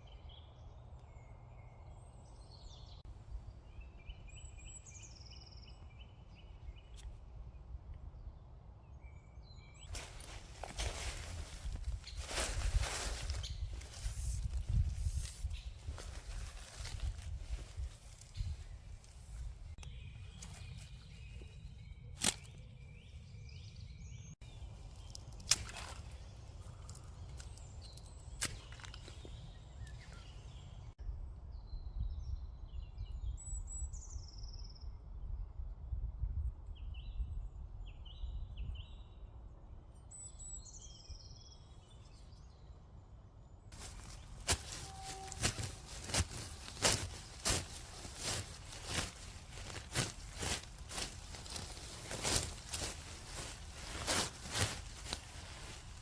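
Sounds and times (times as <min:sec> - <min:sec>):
small birds chirping: 0:00.0 - 0:31.0, 0:40.1 - 0:56.0
wind rumbling on microphone: 0:09.9 - 0:39.7.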